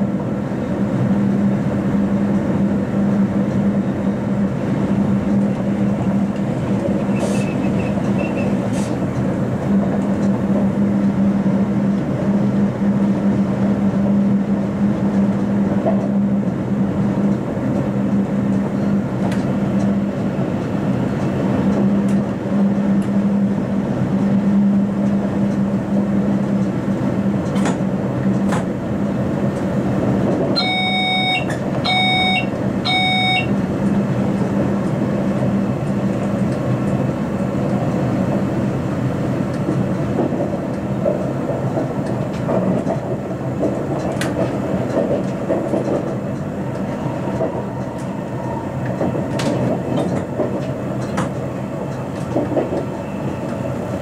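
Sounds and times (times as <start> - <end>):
train wheels rumbling: 0.0 - 54.0
track clicks: 30.3 - 35.0
electronic cab tone beeping: 30.6 - 33.6.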